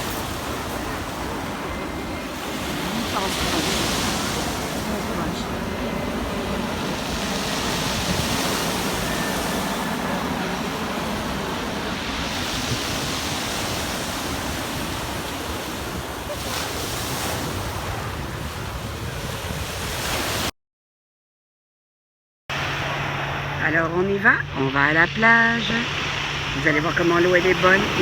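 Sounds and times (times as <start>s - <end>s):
surf washing on beach: 0.0s - 20.5s, 22.6s - 28.0s
wind rumbling on microphone: 0.0s - 20.5s.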